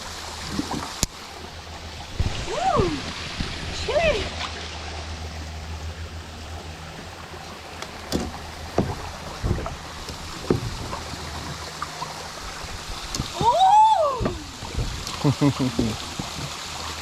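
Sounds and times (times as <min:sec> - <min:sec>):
water sloshing around a kayak: 0:00.0 - 0:17.0
short knocks or splashes: 0:07.9 - 0:12.2, 0:12.9 - 0:16.9.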